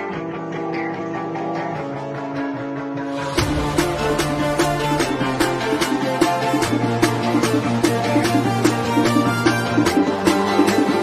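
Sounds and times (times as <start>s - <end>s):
guitar passage: 0.0s - 11.0s
upbeat music with drum beat: 3.2s - 11.0s.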